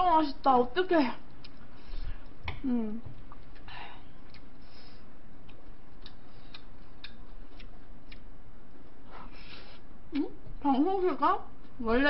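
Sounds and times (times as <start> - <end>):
background hiss: 0.6 - 10.3
wet chewing clicks: 1.1 - 9.0.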